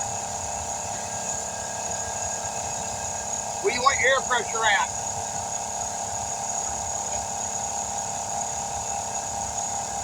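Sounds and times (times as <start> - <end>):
machinery humming: 3.5 - 5.0.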